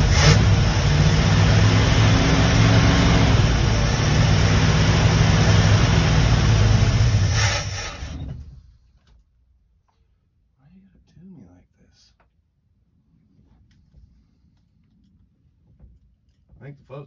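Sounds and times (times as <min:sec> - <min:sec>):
engine running steadily: 0:00.0 - 0:08.5.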